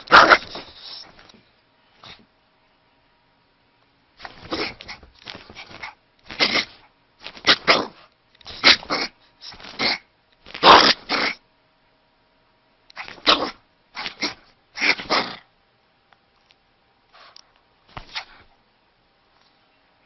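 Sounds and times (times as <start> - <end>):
dog vocalizing: 13.0 - 15.4.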